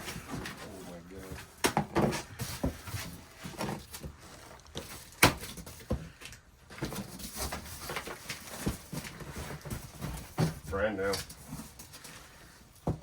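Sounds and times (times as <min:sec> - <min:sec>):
rustling through boxes: 0:00.0 - 0:13.0
knocks of boxes handled: 0:01.4 - 0:04.1, 0:12.8 - 0:13.0.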